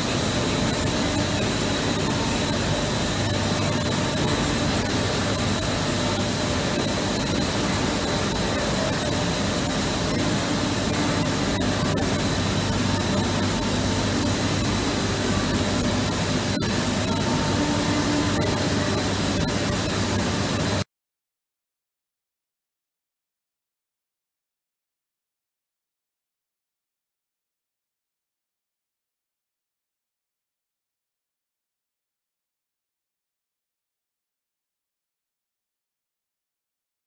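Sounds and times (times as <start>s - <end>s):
dense machinery noise: 0.0s - 20.8s.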